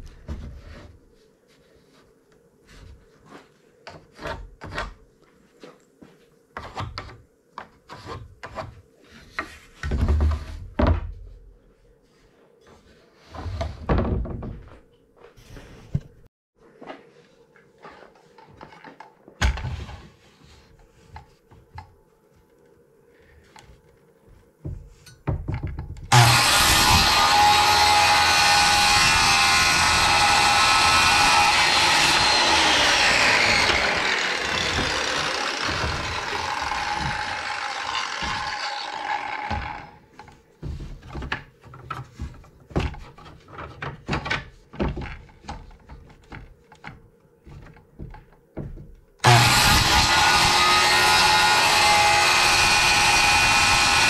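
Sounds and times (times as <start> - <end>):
wood knocking and clattering: 13.6 - 14.8, 24.6 - 26.1, 39.5 - 49.1
power saw cutting wood: 26.1 - 40.0, 49.2 - 54.0.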